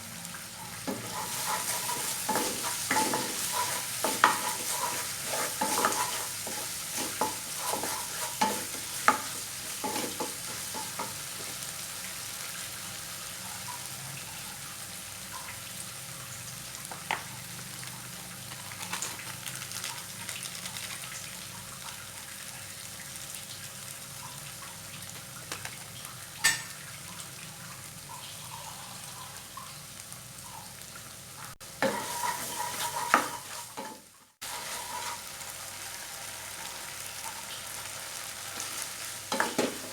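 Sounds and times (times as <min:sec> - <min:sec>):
food sizzling in a pan: 0:00.0 - 0:39.9
spatula scraping a pan: 0:00.8 - 0:11.7, 0:31.8 - 0:36.6, 0:38.5 - 0:39.9.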